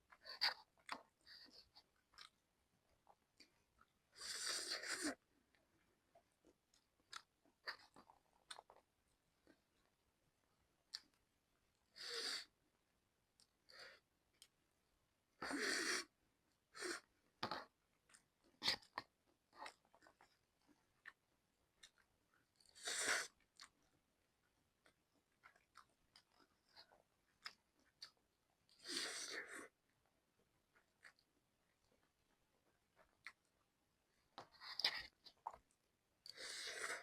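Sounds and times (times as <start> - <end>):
person chewing noodles: 0.1 - 5.8, 21.8 - 24.0, 24.8 - 29.7.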